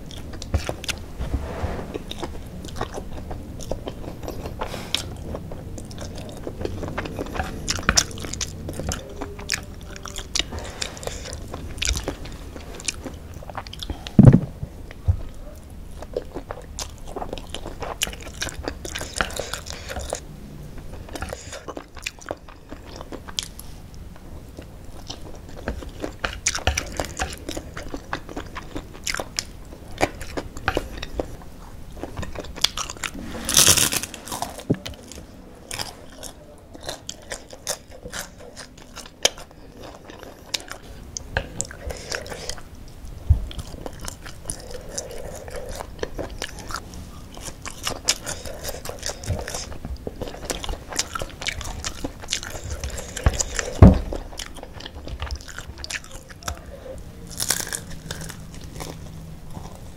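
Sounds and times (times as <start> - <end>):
rustling: 0.6 - 3.1
crunchy chewing: 1.9 - 59.9.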